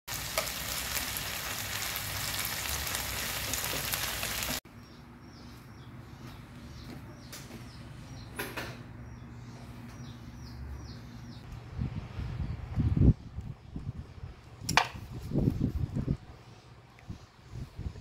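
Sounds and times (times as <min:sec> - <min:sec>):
squid sizzling in a pan: 0:00.1 - 0:04.6
bird chirping: 0:04.7 - 0:11.5.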